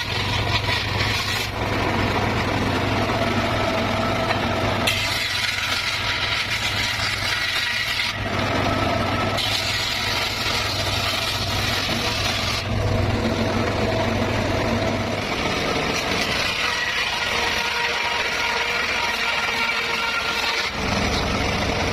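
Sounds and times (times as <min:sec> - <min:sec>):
low engine hum: 0:00.0 - 0:04.9, 0:08.2 - 0:16.5, 0:20.8 - 0:21.9
circular saw cutting bamboo: 0:00.0 - 0:21.9.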